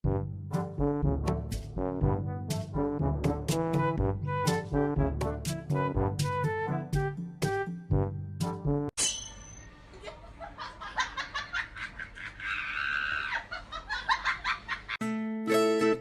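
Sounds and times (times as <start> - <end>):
background music: 0.0 - 8.9, 15.0 - 16.0
person laughing: 9.9 - 15.0
high-pitched shriek of laughter: 11.8 - 14.5
strummed music: 15.0 - 16.0.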